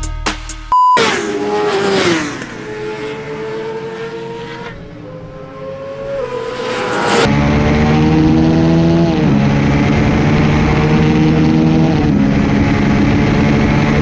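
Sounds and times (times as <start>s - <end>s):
short electronic beep: 0.7s - 1.3s
racing motorcycle engine: 1.0s - 14.0s.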